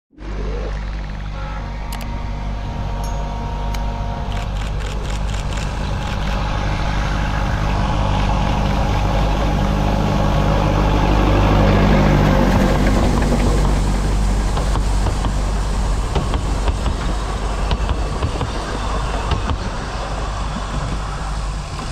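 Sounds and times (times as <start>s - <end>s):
diesel locomotive engine running: 0.1s - 21.9s.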